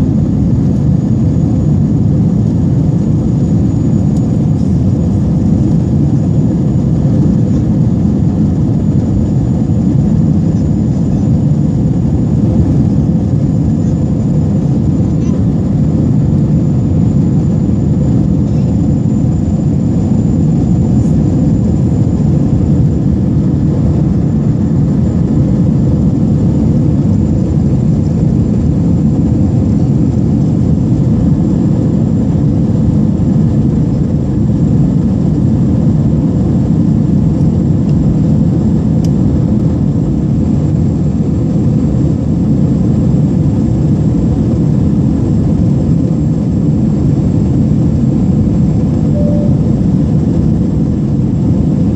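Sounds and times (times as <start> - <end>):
airliner cabin engine rumble: 0.0 - 51.9
faint high whine: 48.4 - 50.7.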